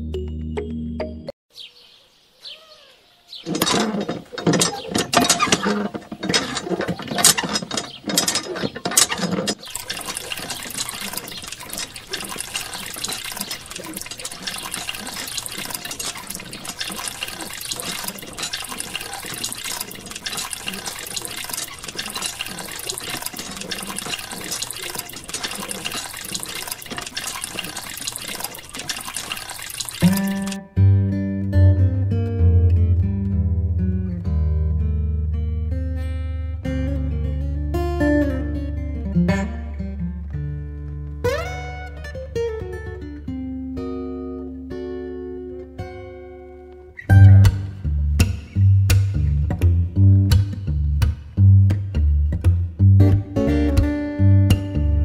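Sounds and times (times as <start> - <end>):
water trickling: 3.4 - 30.6
water pouring and splashing: 3.5 - 30.6.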